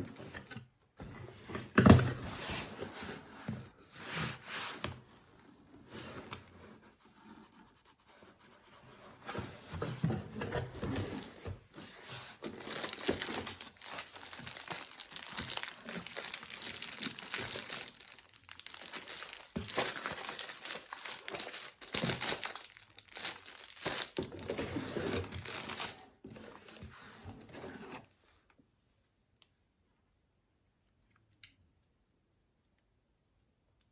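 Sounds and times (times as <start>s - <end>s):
packaging crinkling and tearing: 12.4s - 26.0s.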